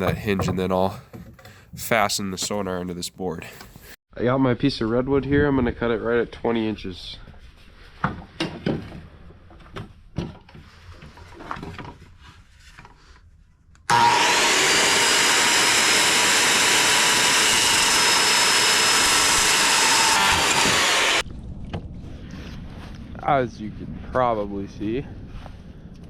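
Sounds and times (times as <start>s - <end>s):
electric saw cutting wood: 13.9s - 21.2s.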